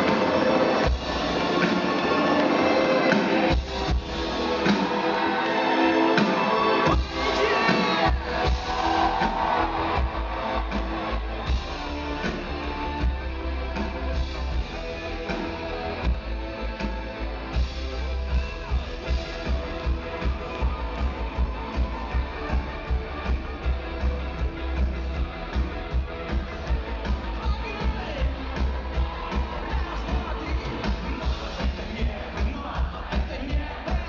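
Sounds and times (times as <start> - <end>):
rock song with band: 0.0 - 34.0
heavy bass: 6.9 - 34.0.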